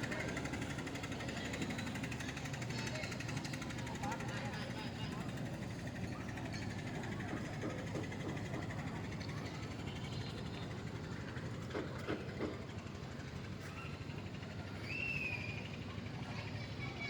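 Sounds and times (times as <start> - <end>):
engine chugging: 0.0 - 17.0
whistled chirp: 14.8 - 15.7.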